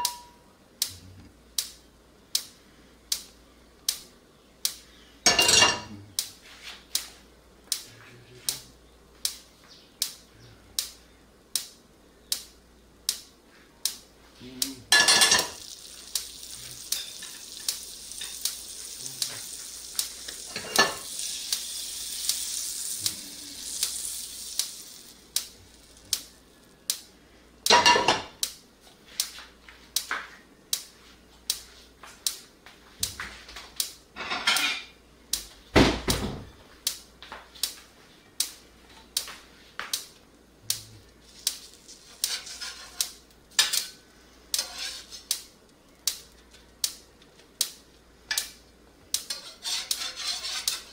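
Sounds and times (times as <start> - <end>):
pan and utensils clattering: 0.0 - 0.3, 5.3 - 5.9, 14.9 - 15.7, 20.4 - 22.3, 27.7 - 28.3, 34.2 - 35.0, 42.1 - 44.0, 44.6 - 45.3
bacon sizzling: 14.9 - 27.1, 41.0 - 50.9.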